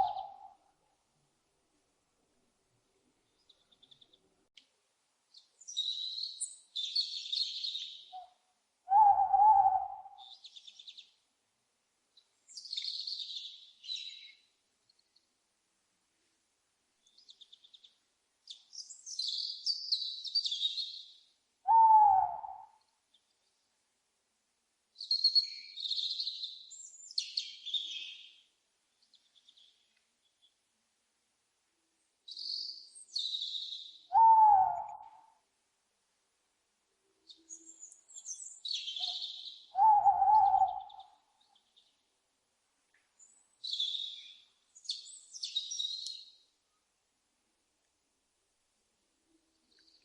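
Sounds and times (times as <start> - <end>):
small birds chirping: 0.0 - 0.5, 3.2 - 4.6, 5.3 - 11.2, 12.1 - 15.4, 17.0 - 22.2, 25.0 - 30.6, 32.2 - 35.2, 37.2 - 42.1, 42.9 - 46.5, 49.5 - 50.0
loud owl call falling in pitch: 8.9 - 10.2, 21.6 - 22.8, 34.1 - 35.4, 39.0 - 41.1.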